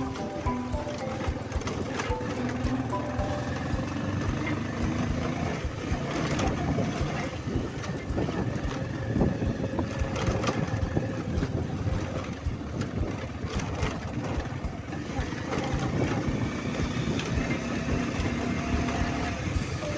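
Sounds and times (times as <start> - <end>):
motorcycle engine running: 0.0 - 19.9
wind noise on microphone: 4.8 - 19.9.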